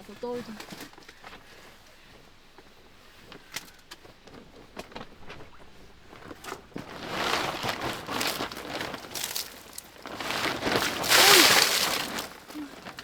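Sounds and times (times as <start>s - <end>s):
plastic tarp crinkling: 2.8s - 13.0s.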